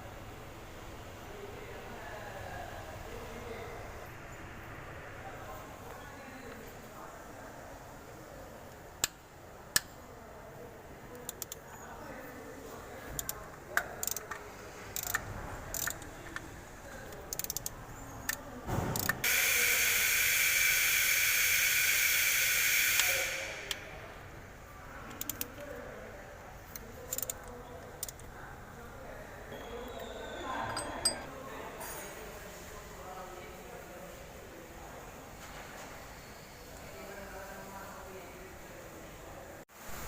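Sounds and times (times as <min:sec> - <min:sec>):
hand tools clicking on metal: 0:13.2 - 0:14.4, 0:15.0 - 0:16.4, 0:30.7 - 0:31.3
loud steady hiss: 0:19.2 - 0:24.0, 0:39.7 - 0:40.0.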